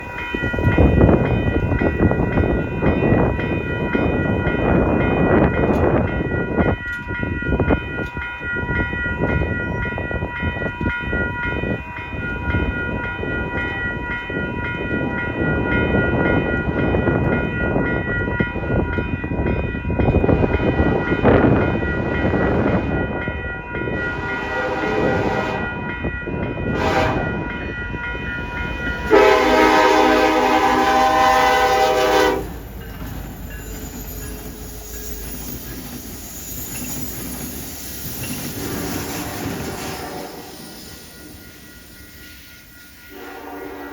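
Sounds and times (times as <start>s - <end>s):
train rumbling past: 0.0s - 43.9s
locomotive horn: 24.0s - 25.9s, 26.7s - 27.5s, 29.0s - 32.6s, 38.6s - 40.7s, 43.1s - 43.9s
steady high tones: 25.6s - 43.2s.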